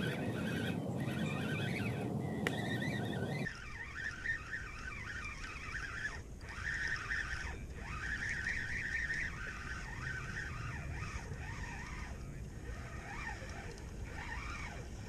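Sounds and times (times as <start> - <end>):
birds chirping and twittering: 0.0 - 14.6.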